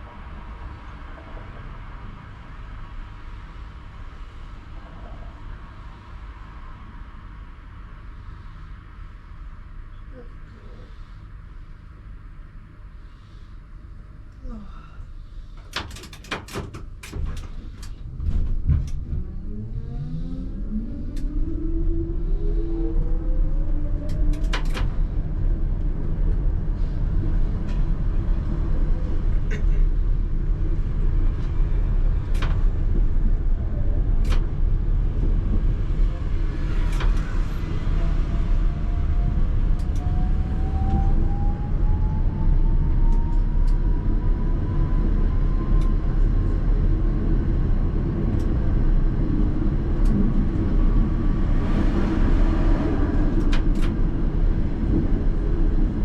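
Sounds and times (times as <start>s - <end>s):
tram wheels rumbling on rails: 0.0s - 9.8s, 13.6s - 56.0s
rail joint clicks: 15.5s - 19.4s, 24.0s - 25.1s, 30.9s - 37.9s, 38.7s - 41.1s, 45.6s - 46.0s, 49.8s - 51.0s, 51.6s - 55.4s.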